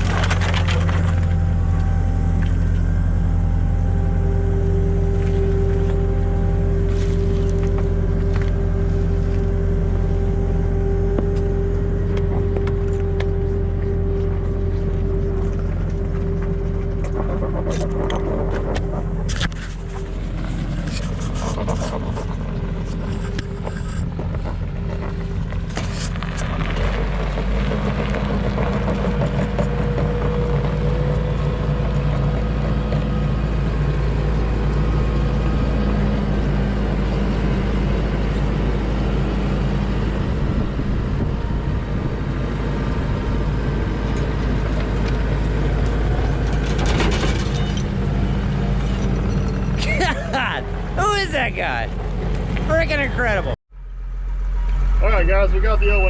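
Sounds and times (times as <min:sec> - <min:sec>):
skid steer engine running: 0:00.0 - 0:56.0
metal and concrete knocks and scrapes: 0:46.5 - 0:47.9.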